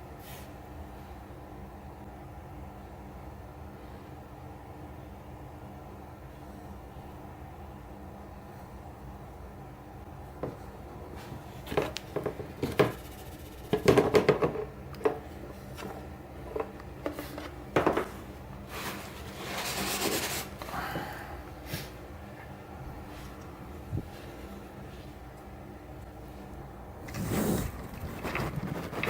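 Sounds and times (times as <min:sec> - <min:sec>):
knocks and clicks of objects handled: 0:11.6 - 0:18.2.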